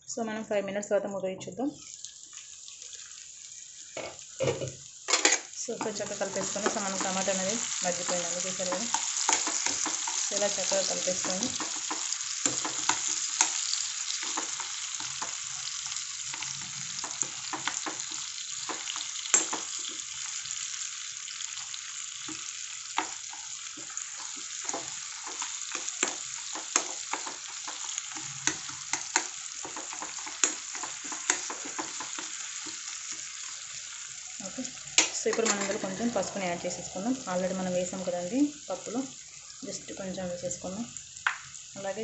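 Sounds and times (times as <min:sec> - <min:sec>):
onions and tomatoes sizzling in oil: 0:00.0 - 0:42.0.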